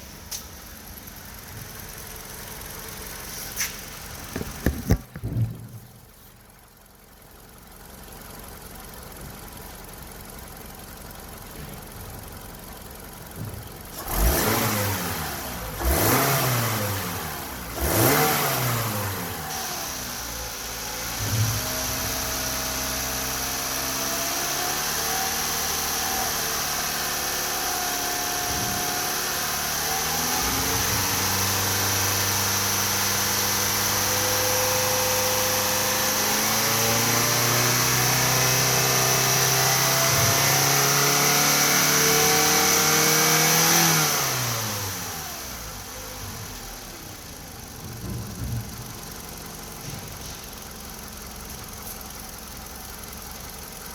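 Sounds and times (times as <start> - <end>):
car engine idling: 0.0 - 53.9
car engine revving: 13.9 - 53.9.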